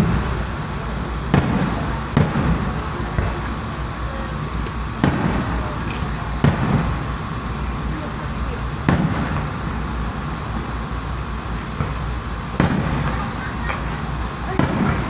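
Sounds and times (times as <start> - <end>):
fireworks booming: 0.0 - 15.0
steady background noise: 0.0 - 15.0.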